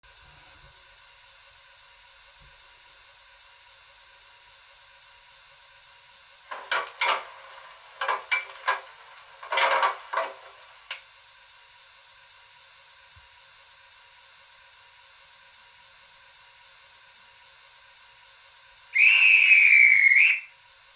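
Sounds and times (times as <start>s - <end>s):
short bursts of steam noise: 19.0s - 20.5s.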